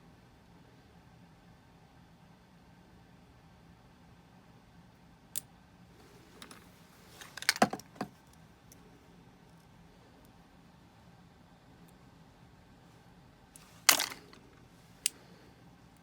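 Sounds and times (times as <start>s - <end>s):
metal tools clicking and clattering: 13.6s - 14.4s.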